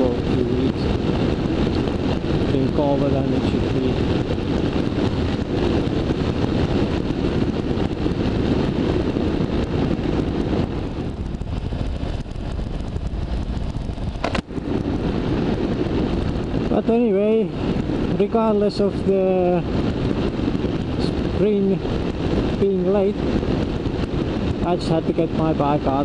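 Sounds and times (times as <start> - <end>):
motorcycle engine running: 0.0 - 18.9
wind and road noise: 0.0 - 26.0
sharp click: 14.2 - 14.5.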